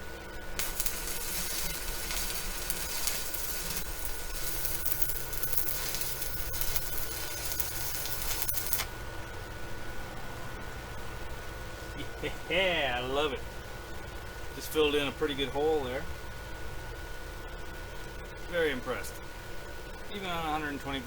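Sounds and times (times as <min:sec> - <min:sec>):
welding arc hissing and crackling: 0:00.0 - 0:09.0.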